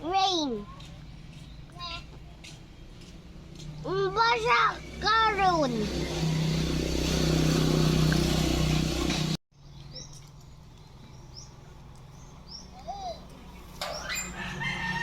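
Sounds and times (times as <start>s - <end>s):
bird chirping: 9.6s - 14.5s.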